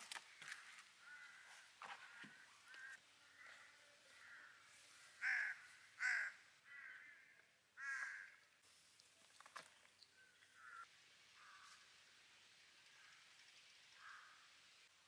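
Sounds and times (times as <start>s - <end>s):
bird calling: 0.0s - 8.4s, 9.6s - 11.8s.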